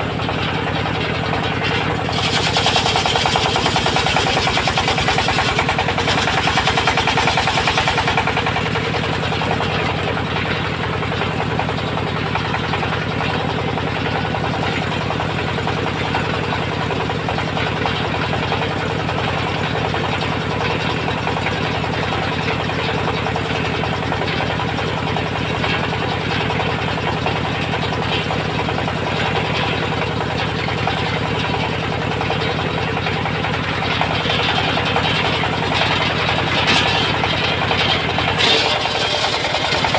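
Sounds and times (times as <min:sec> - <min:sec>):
circular sawmill running: 0:00.0 - 0:39.9.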